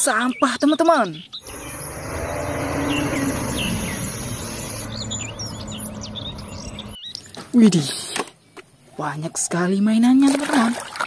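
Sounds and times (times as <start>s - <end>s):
small birds chirping: 0.0s - 10.2s
high insect-like drone: 1.4s - 6.2s.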